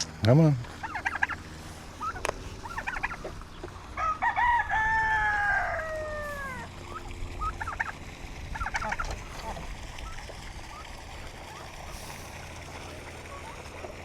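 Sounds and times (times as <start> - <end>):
poultry calls: 0.7 - 10.9
rooster crowing: 3.9 - 6.7.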